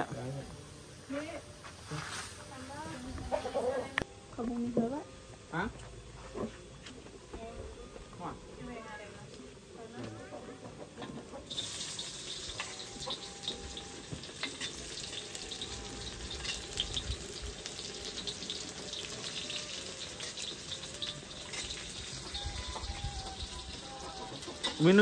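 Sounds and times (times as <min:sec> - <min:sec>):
shallots sizzling in oil: 0:11.4 - 0:25.0
metal spatula scraping wok: 0:11.5 - 0:25.0.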